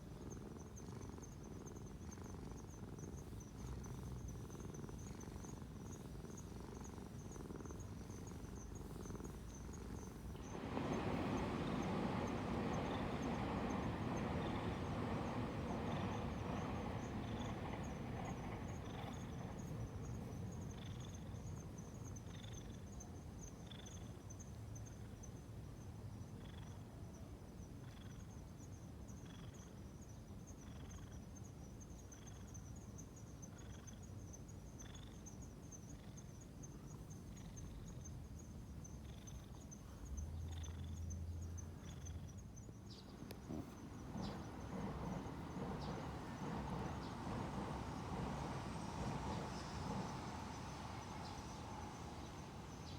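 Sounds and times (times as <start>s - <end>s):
insects trilling: 0.0s - 52.9s
short insect chirps: 0.2s - 25.2s, 32.0s - 52.9s
broad rushing noise: 10.3s - 17.2s.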